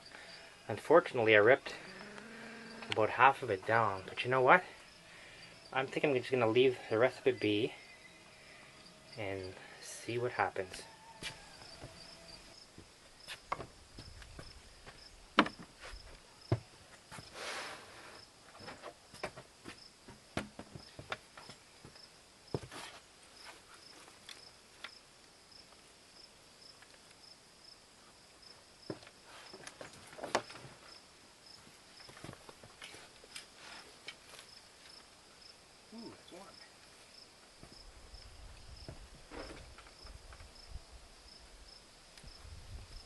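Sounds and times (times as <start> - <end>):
crickets chirping: 0.0 - 43.0.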